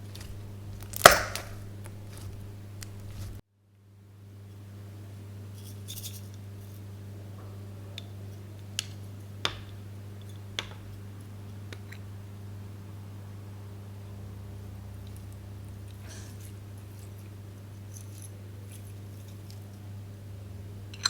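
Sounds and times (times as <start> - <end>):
slime crackling: 0.0 - 3.4
steady low hum: 0.0 - 21.0.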